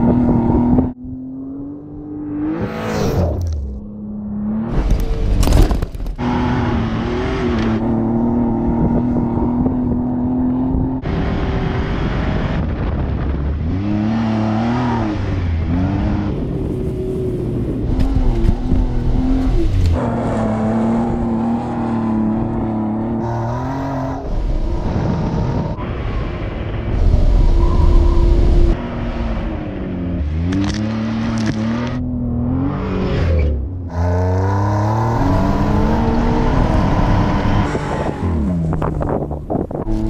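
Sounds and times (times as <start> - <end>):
car engine revving: 0.0 - 40.0.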